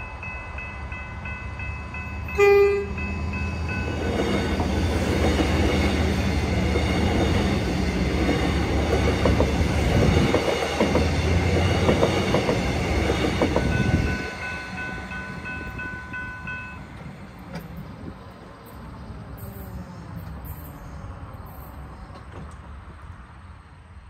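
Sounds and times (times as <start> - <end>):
electric train passing: 0.0 - 24.0
wheels clicking over rail joints: 3.7 - 23.2
level crossing bell ringing: 13.7 - 16.9.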